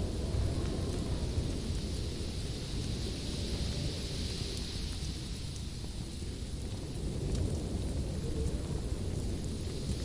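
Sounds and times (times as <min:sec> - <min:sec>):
fire flames rumbling: 0:00.0 - 0:10.0
fire crackling: 0:04.5 - 0:10.0.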